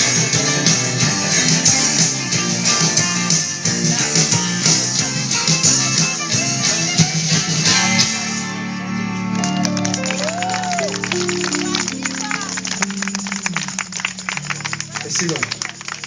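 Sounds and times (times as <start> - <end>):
rock band playing: 0.0 - 16.0
strummed guitars: 0.0 - 16.0.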